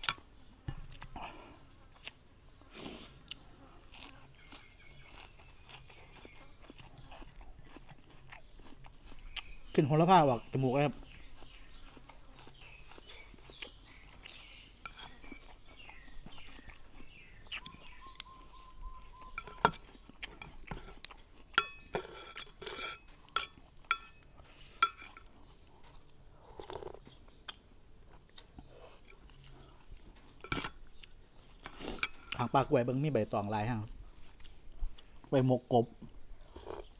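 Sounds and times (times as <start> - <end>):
person chewing: 0.0 - 32.5, 34.0 - 35.3, 36.0 - 36.9
utensils clinking against bowl: 19.2 - 19.8, 21.6 - 24.2, 24.8 - 25.3, 32.0 - 32.6.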